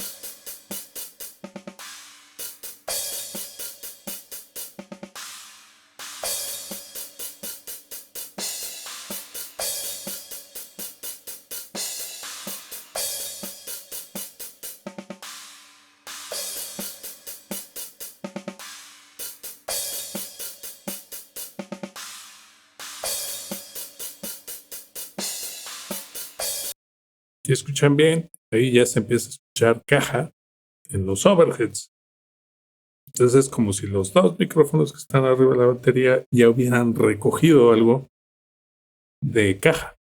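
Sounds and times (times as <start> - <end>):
cymbal crash: 0.0 - 4.1, 5.2 - 11.0, 22.0 - 24.5
hi-hat strokes: 0.0 - 26.7.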